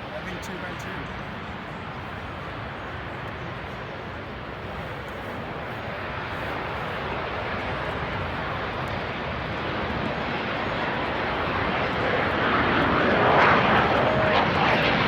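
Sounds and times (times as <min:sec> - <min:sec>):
aircraft engine rushing: 0:00.0 - 0:15.0.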